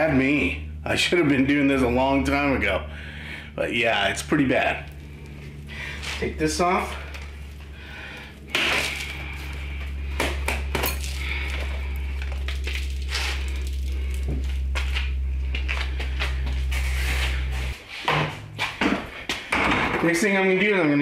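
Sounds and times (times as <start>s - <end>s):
steady low hum: 0.0s - 21.0s
metallic clinks and scraping of hose: 10.7s - 15.1s.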